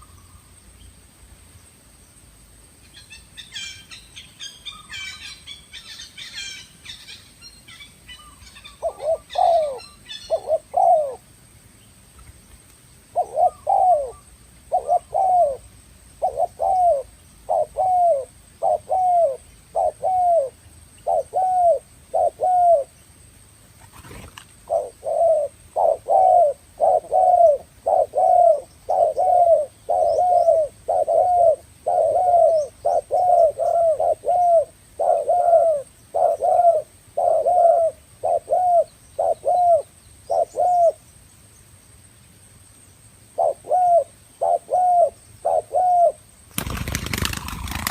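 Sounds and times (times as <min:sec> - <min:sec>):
dove cooing: 0:08.2 - 0:11.2, 0:13.1 - 0:22.9, 0:24.0 - 0:41.0, 0:43.4 - 0:47.9.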